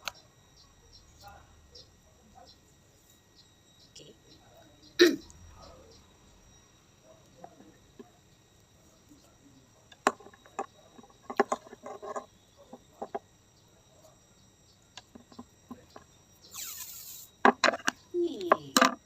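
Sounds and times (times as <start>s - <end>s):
short falling hiss: 16.5s - 17.3s.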